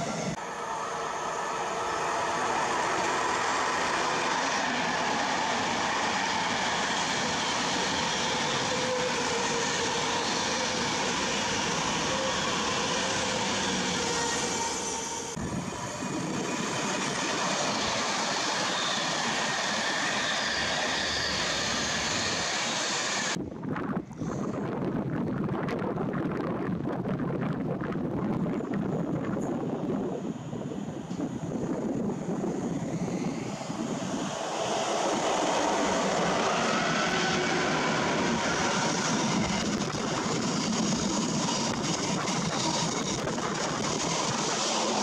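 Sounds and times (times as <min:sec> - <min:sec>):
electric train wheel and rail noise: 0:00.0 - 0:45.0
wind on microphone: 0:15.4 - 0:18.1, 0:23.4 - 0:45.0.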